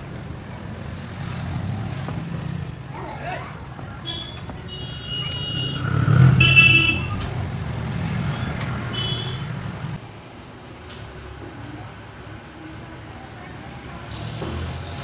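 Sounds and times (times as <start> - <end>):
vehicle engine rumbling past: 0.0 - 10.0
steady traffic noise: 0.0 - 15.0.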